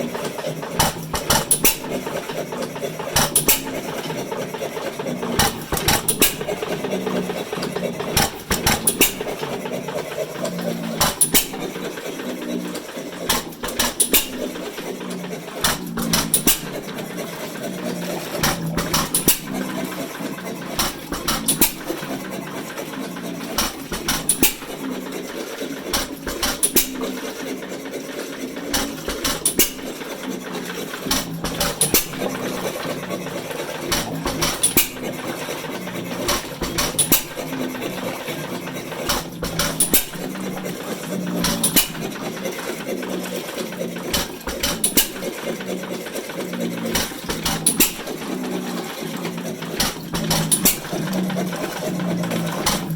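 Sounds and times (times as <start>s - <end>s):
steady mechanical running: 0.0s - 52.9s.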